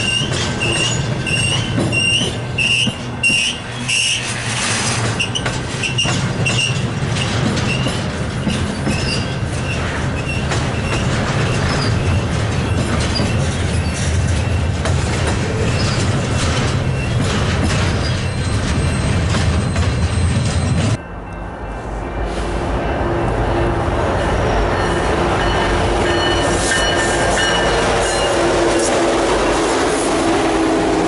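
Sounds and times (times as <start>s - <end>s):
wheel squeals: 0.0s - 21.0s
train wheels rumbling on rail: 0.0s - 31.0s.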